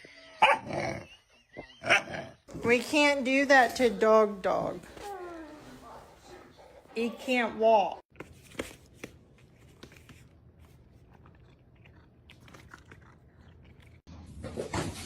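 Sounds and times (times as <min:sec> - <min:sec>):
crunching and chewing: 0:10.2 - 0:14.1.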